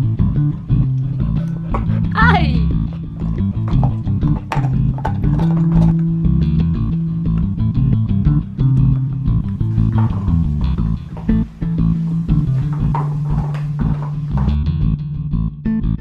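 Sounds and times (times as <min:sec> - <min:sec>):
background music with bass line: 0:00.0 - 0:16.0.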